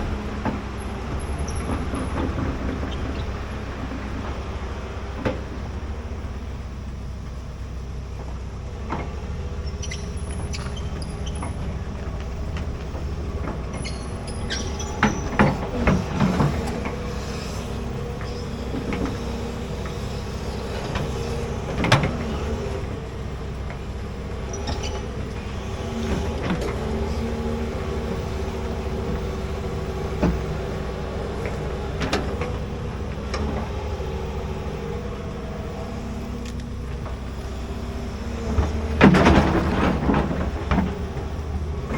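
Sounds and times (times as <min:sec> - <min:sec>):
excavator diesel engine running: 0:00.0 - 0:41.9
metal clanks and knocks: 0:38.5 - 0:41.4.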